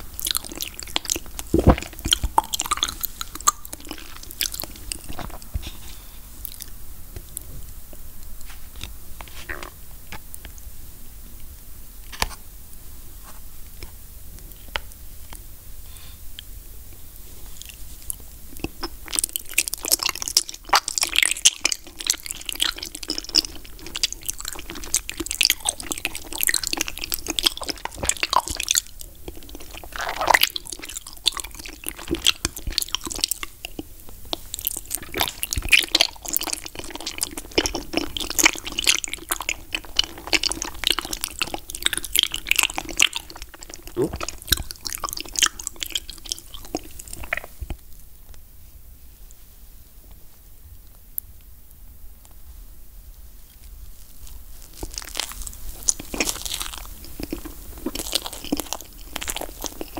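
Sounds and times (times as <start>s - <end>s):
wet chewing clicks: 0.0s - 5.8s, 17.6s - 48.0s, 54.2s - 59.9s
biting into jelly: 0.2s - 5.7s, 17.6s - 47.8s, 54.3s - 59.9s.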